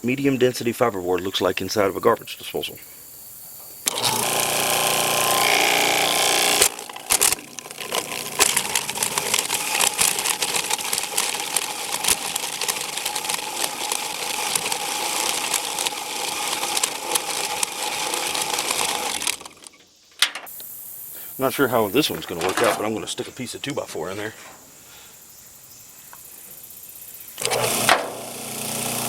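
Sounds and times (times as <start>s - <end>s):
garbage disposal grinding: 3.9s - 19.7s, 27.4s - 29.0s.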